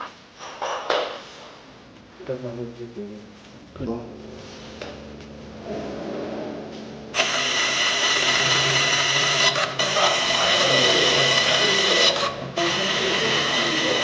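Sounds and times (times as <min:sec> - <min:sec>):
power tool motor whining: 0:07.1 - 0:14.0.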